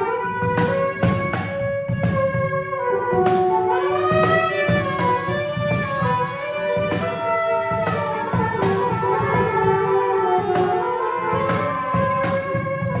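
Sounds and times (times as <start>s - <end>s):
hand drum strokes: 0.0s - 13.0s
saxophones and clarinet long notes: 0.0s - 13.0s.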